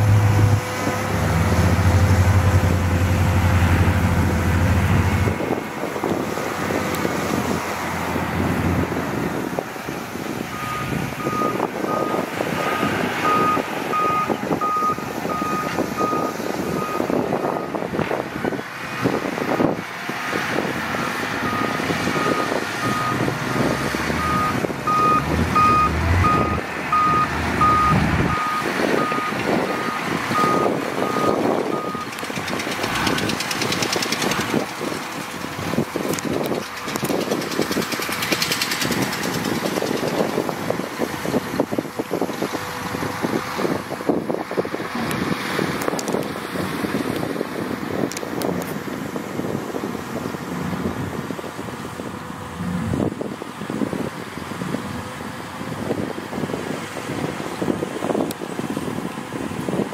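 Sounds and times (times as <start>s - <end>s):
heavy machinery running: 0.0s - 44.7s
reversing alarm beeping: 10.5s - 17.8s, 21.5s - 32.1s.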